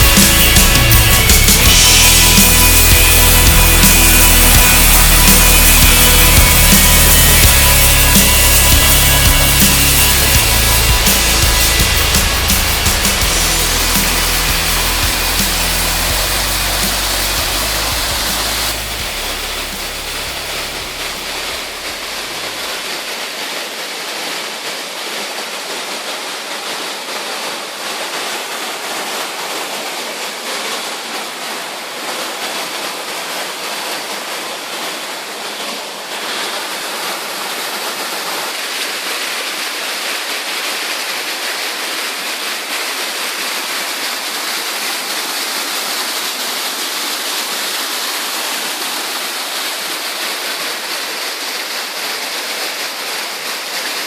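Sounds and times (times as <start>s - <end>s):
background music: 0.0s - 22.6s
waterfall rushing: 0.0s - 54.0s.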